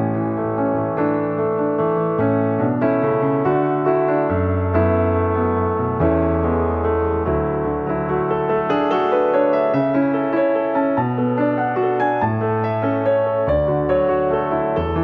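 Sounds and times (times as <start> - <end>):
piano tune: 0.0 - 15.0.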